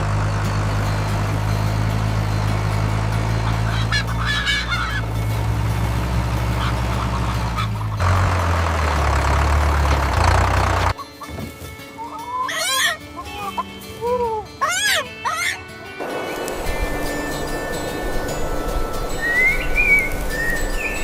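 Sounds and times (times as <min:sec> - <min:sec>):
tractor engine running: 0:00.0 - 0:11.0, 0:16.0 - 0:21.0
poultry call: 0:03.1 - 0:05.4, 0:06.4 - 0:08.0, 0:12.0 - 0:21.0.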